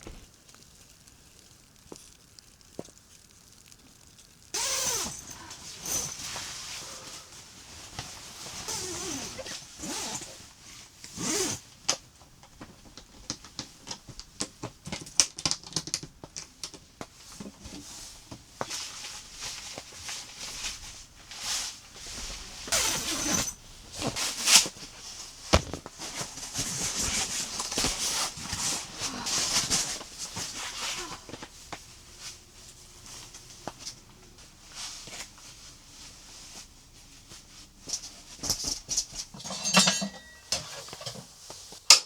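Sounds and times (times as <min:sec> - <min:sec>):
rustling and swishing of gear: 0:04.6 - 0:11.7, 0:17.2 - 0:41.8.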